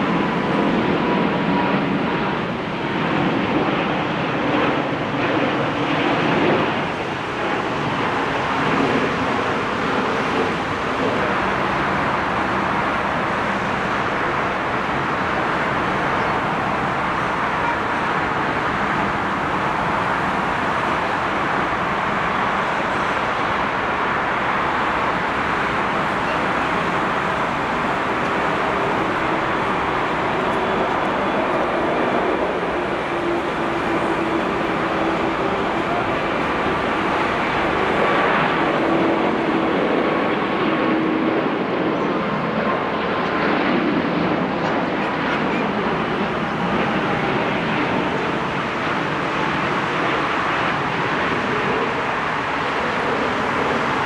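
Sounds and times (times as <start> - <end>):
jet engines and airflow rushing: 0.0 - 54.0
faint steady whine: 7.2 - 40.5.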